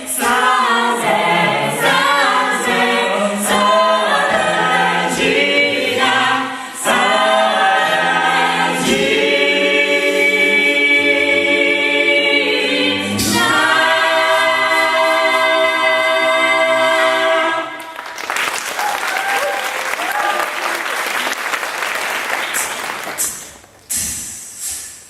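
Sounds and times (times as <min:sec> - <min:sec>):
vocal group singing in harmony: 0:00.0 - 0:18.0.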